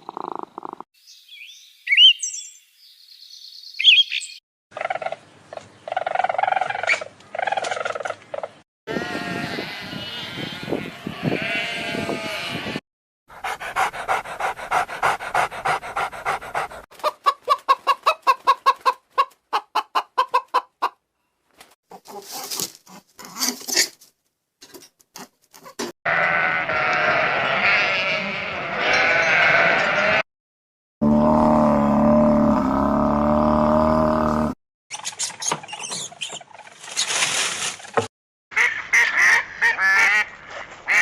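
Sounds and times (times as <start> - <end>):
animal bleating: 8.9 - 12.8, 26.1 - 30.2.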